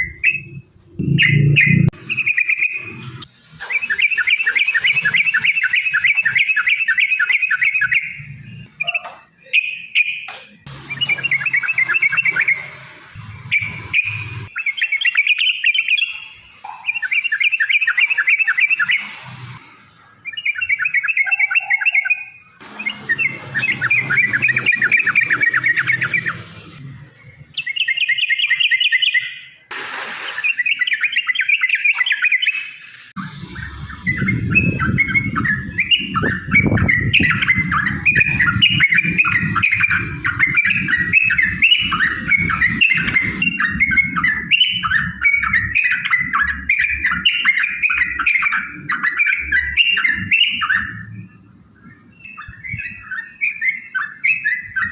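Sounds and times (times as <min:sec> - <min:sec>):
bulbul rapid chattering song: 0:00.0 - 0:19.2, 0:30.1 - 0:51.0.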